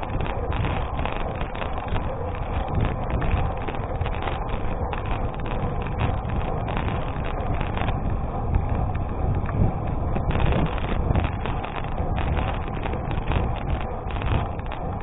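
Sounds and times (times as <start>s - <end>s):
bicycle tyres on gravel: 0.0s - 15.0s
wind rumbling on microphone: 0.0s - 15.0s.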